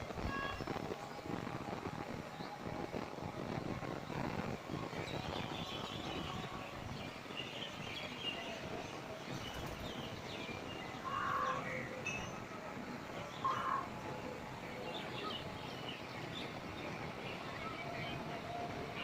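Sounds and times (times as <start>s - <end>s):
low background noise: 0.0s - 19.0s
birds chirping: 5.0s - 19.0s.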